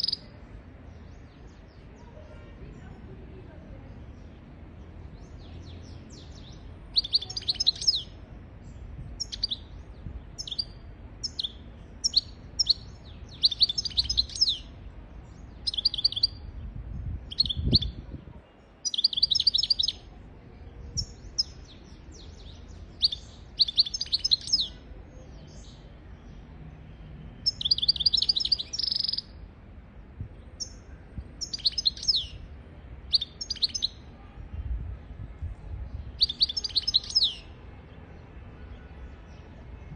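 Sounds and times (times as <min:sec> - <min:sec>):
goldfinch twittering song: 0:05.3 - 0:08.2, 0:09.2 - 0:14.8, 0:15.4 - 0:16.4, 0:17.3 - 0:18.0, 0:18.8 - 0:20.0, 0:20.9 - 0:24.8, 0:27.4 - 0:29.3, 0:30.6 - 0:32.4, 0:33.1 - 0:34.0, 0:36.1 - 0:37.5.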